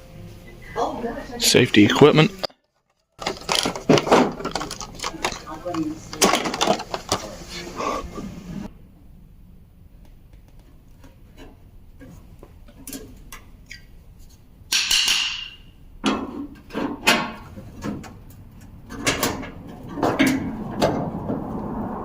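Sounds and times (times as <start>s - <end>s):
clicks and knocks of handling: 2.4s - 7.4s.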